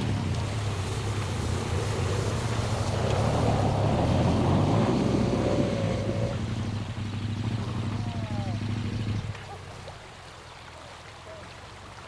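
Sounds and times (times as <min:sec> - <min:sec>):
rushing noise: 0:00.0 - 0:06.8
motorcycle engine running: 0:00.0 - 0:09.8.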